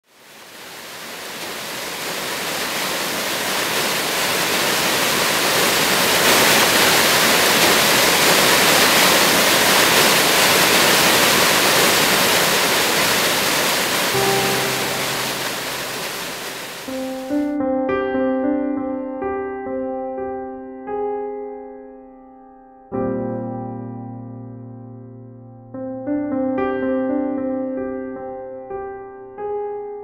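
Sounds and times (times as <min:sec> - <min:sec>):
waterfall rushing: 0:00.1 - 0:17.6.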